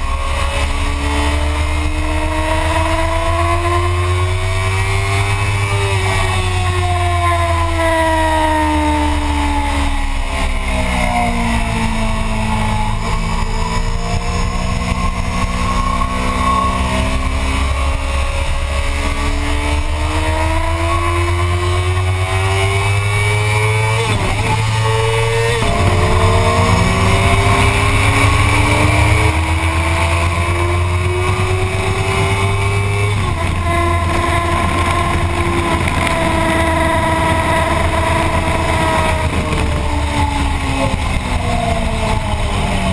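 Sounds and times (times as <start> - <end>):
motorcycle engine accelerating: 0.0 - 42.9
wind rumble on microphone: 10.0 - 42.9.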